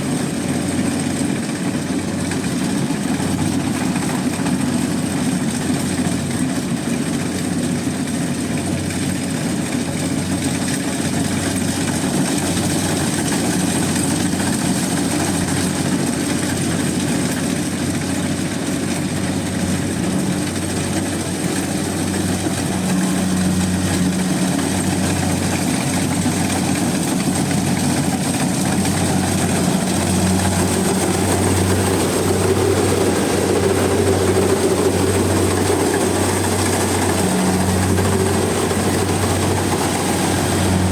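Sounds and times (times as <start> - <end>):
combine harvester engine hum: 0.0 - 40.9
high steady whine: 20.1 - 40.9.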